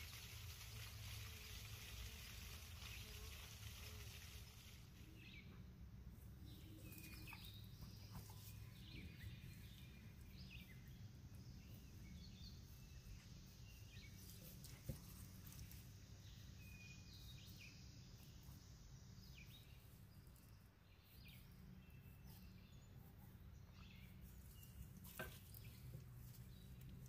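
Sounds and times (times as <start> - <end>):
low steady hum: 0.0 - 27.0
faint bird chirps: 6.4 - 26.8.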